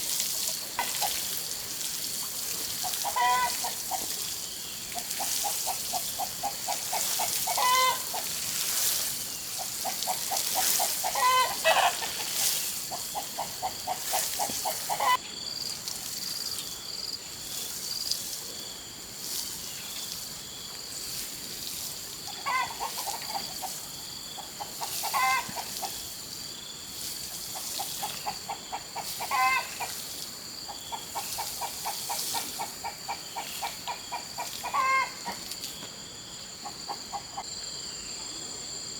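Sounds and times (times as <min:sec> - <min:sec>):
chickens clucking: 0:02.8 - 0:04.2, 0:05.0 - 0:08.9, 0:09.6 - 0:15.2, 0:22.3 - 0:26.0, 0:27.5 - 0:35.6, 0:36.6 - 0:37.4.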